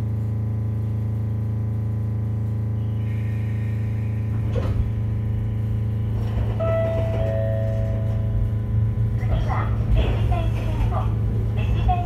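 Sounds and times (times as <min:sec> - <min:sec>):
clunk: 0:04.3 - 0:05.0.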